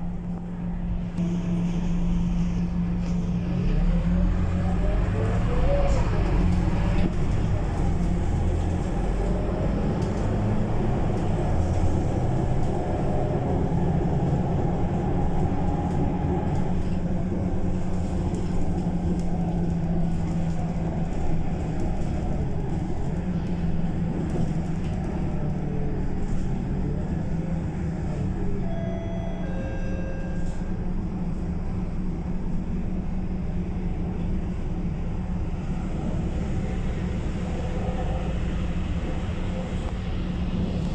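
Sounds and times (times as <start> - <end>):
bus engine droning: 0.0 - 40.9
short electronic tones: 1.2 - 2.7, 28.7 - 30.6.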